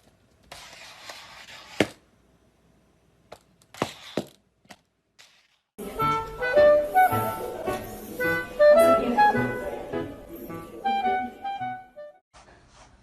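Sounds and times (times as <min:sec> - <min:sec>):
music: 0:05.8 - 0:12.2.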